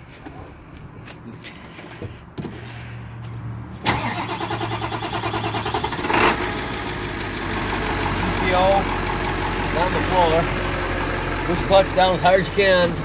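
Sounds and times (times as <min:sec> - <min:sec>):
truck engine cranking and running: 0:03.8 - 0:13.0.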